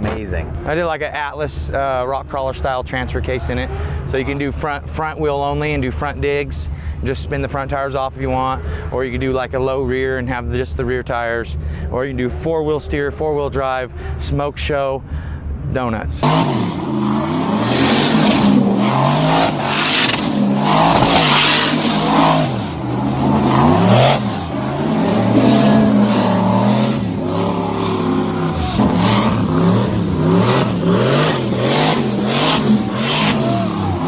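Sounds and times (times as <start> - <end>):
car engine revving: 16.2 - 34.0.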